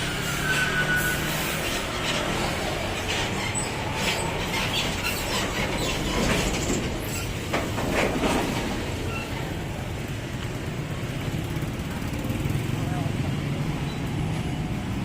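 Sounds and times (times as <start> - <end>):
truck engine rumbling: 0.0 - 15.0
knocks and rattles: 3.1 - 9.1.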